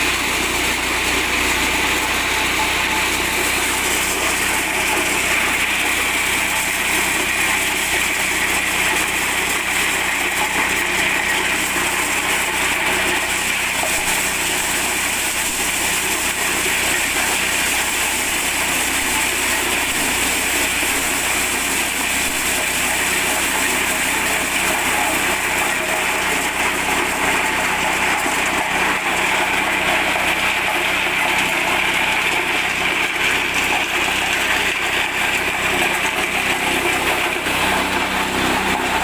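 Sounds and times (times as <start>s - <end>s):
petrol engine running: 24.5s - 39.0s.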